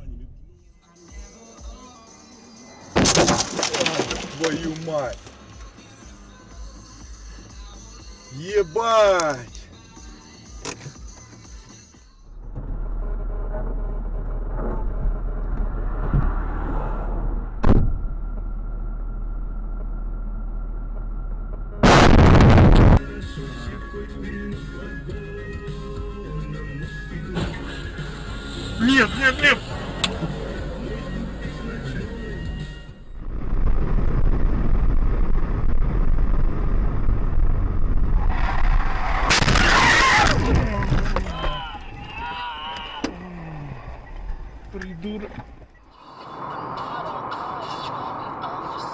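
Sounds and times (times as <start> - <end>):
car road and engine noise: 0.0 - 48.9
loud harsh noise burst: 21.8 - 23.0
sharp bang: 39.1 - 40.6.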